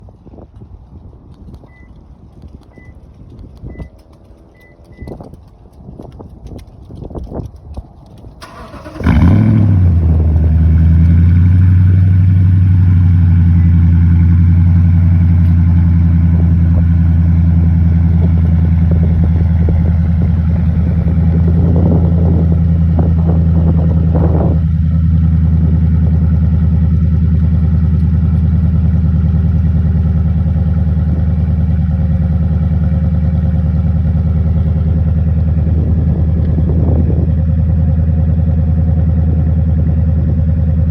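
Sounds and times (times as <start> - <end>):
truck engine idling: 8.4 - 40.9
truck engine starting: 8.4 - 40.9.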